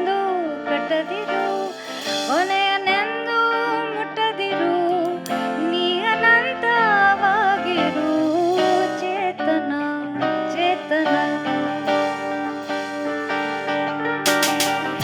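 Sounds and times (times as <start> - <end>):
jazz band accompaniment: 0.0 - 3.6, 4.7 - 15.0
woman singing: 0.0 - 12.5.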